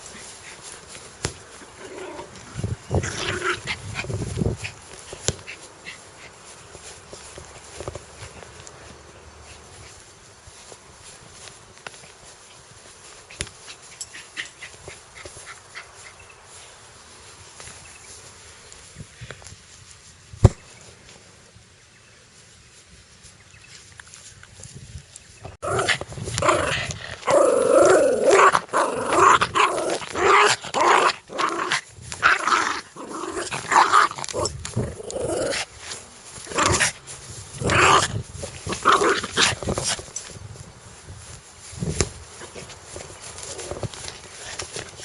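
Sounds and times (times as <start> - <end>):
dog growling: 25.6 - 35.7.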